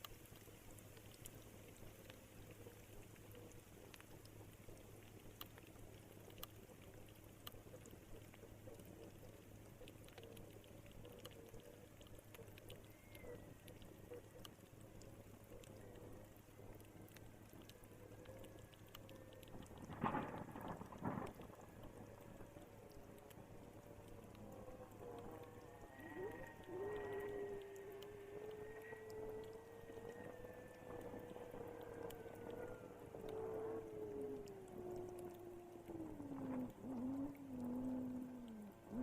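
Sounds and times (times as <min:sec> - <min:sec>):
faint rain dripping: 0:00.0 - 0:39.0
low hum: 0:00.0 - 0:39.0.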